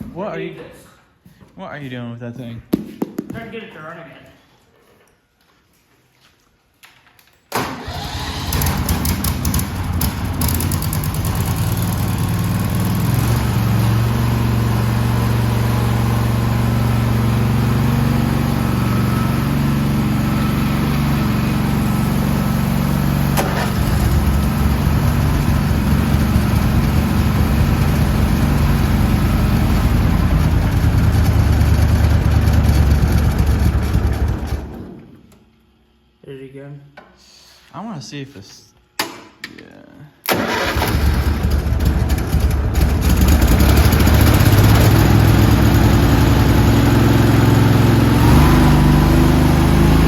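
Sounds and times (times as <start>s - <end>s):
riding lawn mower engine: 7.6s - 35.0s, 40.3s - 50.0s.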